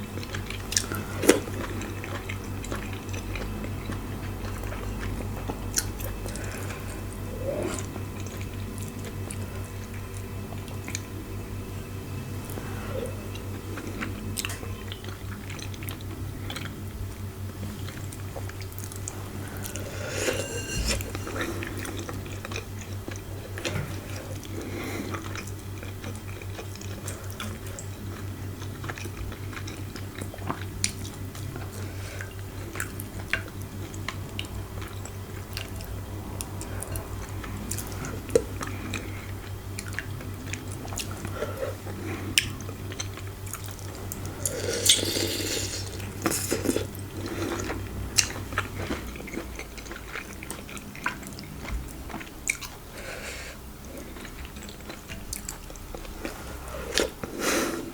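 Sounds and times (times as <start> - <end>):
steady low hum: 0.0 - 57.9
person chewing and biting: 42.3 - 52.9.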